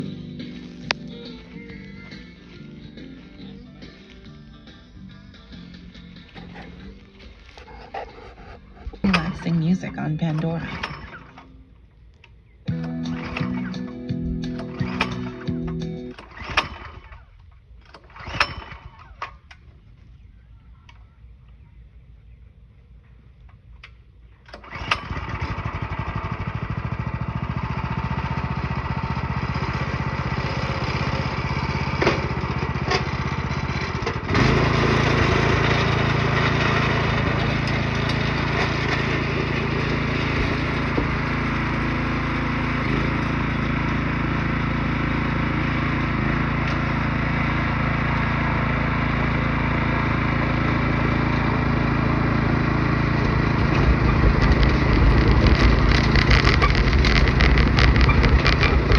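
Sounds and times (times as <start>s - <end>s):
small gasoline engine running: 7.9s - 11.6s, 12.7s - 19.9s, 24.5s - 58.9s.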